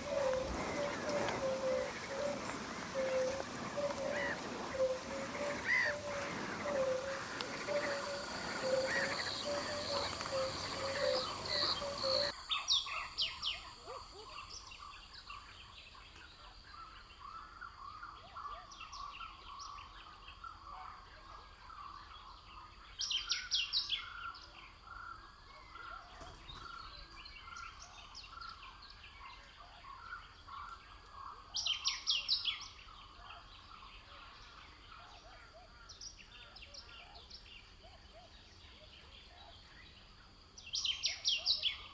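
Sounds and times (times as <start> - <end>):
short repeated bird calls: 0.0 - 12.3.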